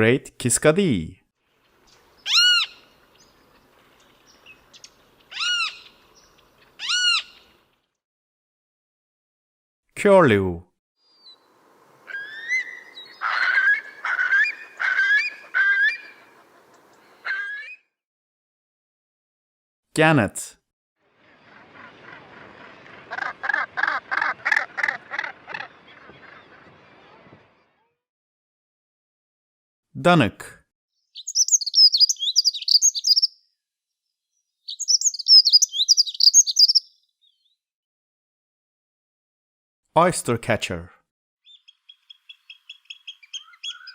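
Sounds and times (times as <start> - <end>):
bird warbling song: 1.6 - 7.8, 11.0 - 17.8, 21.2 - 27.3, 31.1 - 33.4, 34.3 - 37.6, 41.4 - 43.9
curlew calling: 1.9 - 7.6, 11.1 - 17.8, 21.2 - 27.3, 31.2 - 33.3, 34.7 - 36.9, 41.5 - 43.9.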